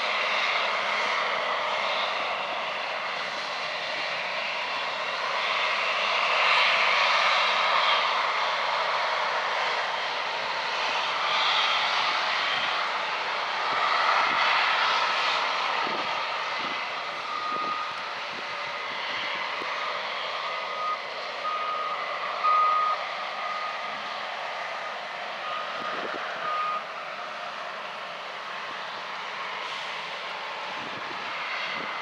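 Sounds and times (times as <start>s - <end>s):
reversing alarm beeping: 17.2s - 18.0s, 20.4s - 23.9s, 24.8s - 26.9s.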